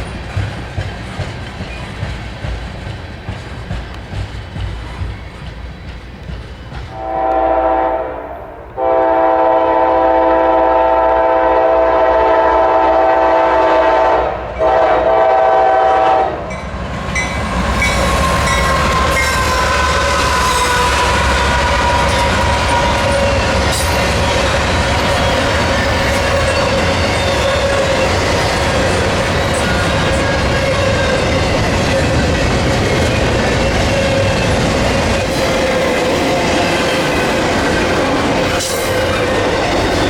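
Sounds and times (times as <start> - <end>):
wheels clattering over rail joints: 0.0 - 7.0
train rumbling past: 0.0 - 40.0
locomotive air horn: 6.9 - 16.5.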